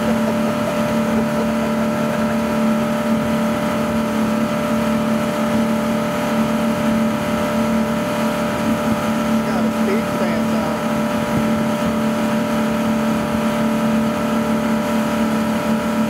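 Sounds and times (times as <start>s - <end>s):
boat engine running: 0.0s - 16.0s
water noise: 0.0s - 16.0s
wind noise: 11.0s - 12.1s.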